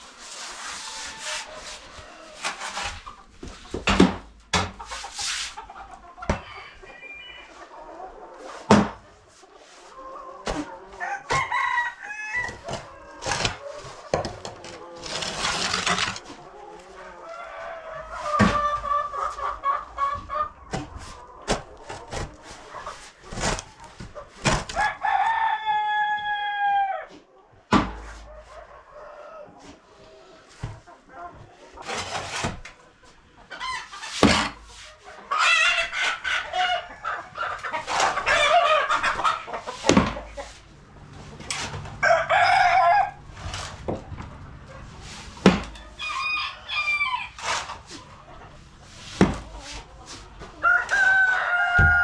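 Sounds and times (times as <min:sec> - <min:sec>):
chickens clucking: 0:00.0 - 0:52.0
rooster crowing: 0:06.4 - 0:07.5, 0:11.0 - 0:12.7, 0:24.8 - 0:27.1, 0:42.0 - 0:43.3, 0:45.9 - 0:47.4, 0:50.6 - 0:52.0.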